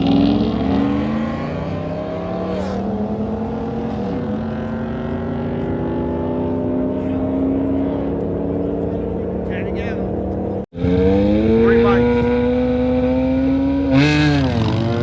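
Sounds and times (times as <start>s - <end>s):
car engine accelerating hard: 10.5s - 15.0s.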